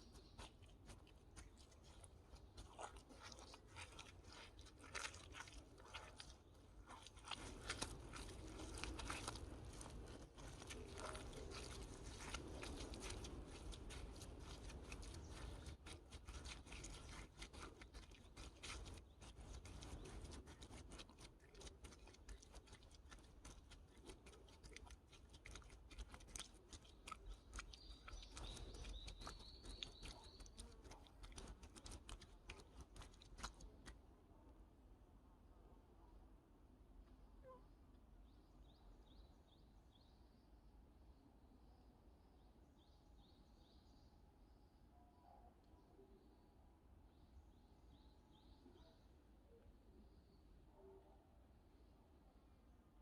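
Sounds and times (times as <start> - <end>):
bare feet squelching in mud: 0.0 - 34.0
small clicks and crackles: 0.0 - 34.0.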